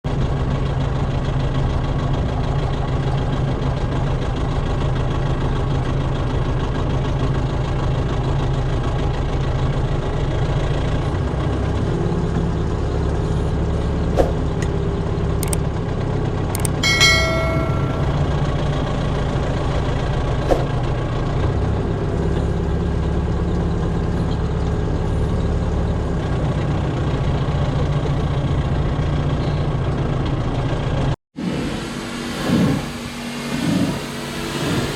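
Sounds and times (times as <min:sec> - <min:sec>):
tractor engine running: 0:00.1 - 0:34.9
sharp clicks: 0:16.6 - 0:16.8
high ringing squeak: 0:16.6 - 0:18.8.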